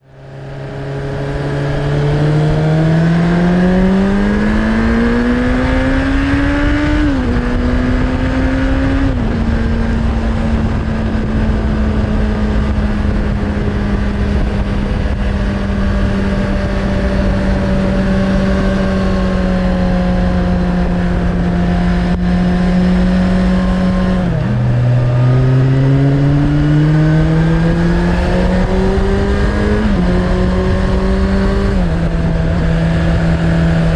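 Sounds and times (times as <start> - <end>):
motorcycle engine revving: 0.0 - 33.9
wind noise: 0.0 - 33.9.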